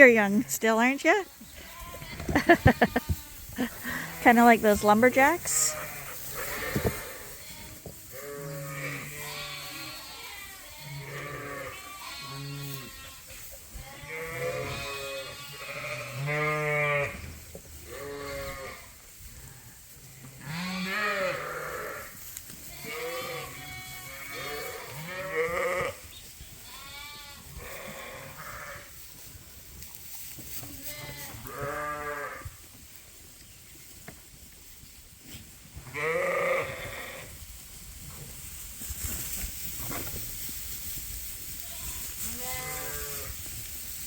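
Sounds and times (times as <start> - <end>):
sheep bleating: 1.6 - 4.4, 5.4 - 17.2, 20.4 - 22.1, 22.7 - 26.0, 26.6 - 28.8, 30.8 - 32.4, 35.9 - 37.3, 41.6 - 43.3.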